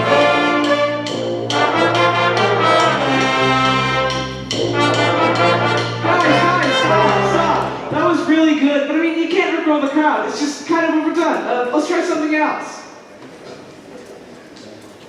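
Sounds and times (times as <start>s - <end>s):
wind band playing brass chords: 0.0s - 8.6s.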